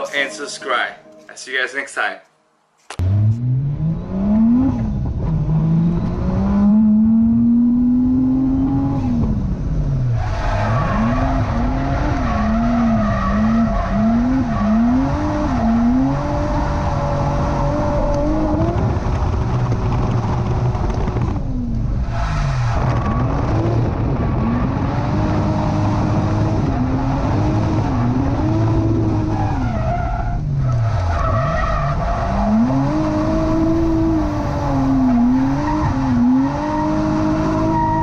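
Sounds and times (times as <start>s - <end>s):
car engine revving: 3.0s - 38.0s
tyres squealing and skidding: 10.1s - 16.1s, 29.0s - 33.8s, 34.8s - 38.0s.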